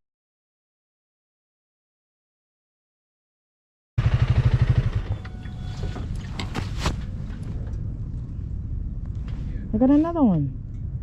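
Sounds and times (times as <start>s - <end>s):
motorcycle engine running: 4.0s - 5.8s.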